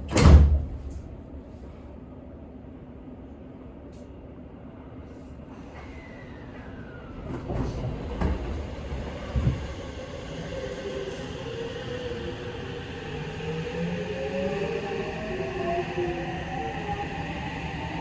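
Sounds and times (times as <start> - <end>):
train wheels rumbling on rail: 5.5 - 18.0.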